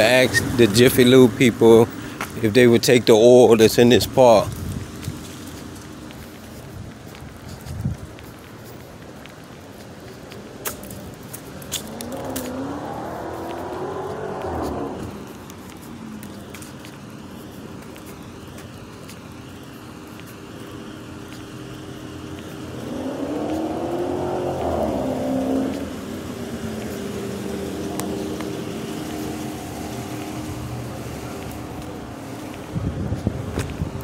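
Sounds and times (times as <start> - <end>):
car engine running: 20.7 - 34.0.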